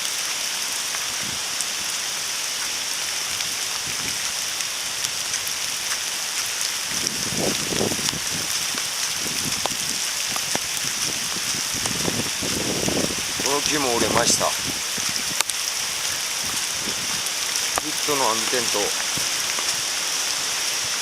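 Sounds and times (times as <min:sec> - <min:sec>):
steady rain hiss: 0:00.0 - 0:21.0
raindrops ticking: 0:03.4 - 0:20.0.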